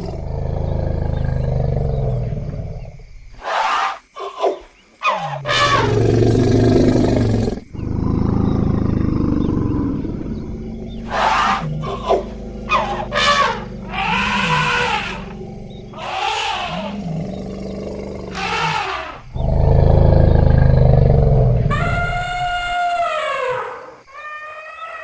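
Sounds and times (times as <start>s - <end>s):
elephants trumpeting: 3.4s - 6.2s, 9.6s - 17.5s, 18.2s - 23.7s
loud deep roar: 5.4s - 22.0s.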